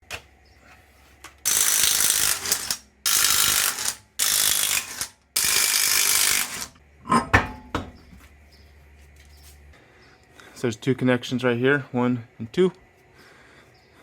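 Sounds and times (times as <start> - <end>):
ratchet wrench clicking: 1.5 - 6.8.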